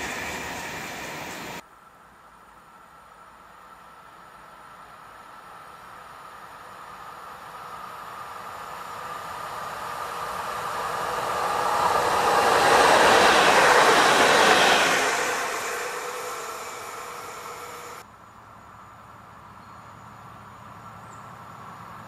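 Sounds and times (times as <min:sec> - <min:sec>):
electric train passing: 0:00.0 - 0:01.6, 0:03.6 - 0:18.0.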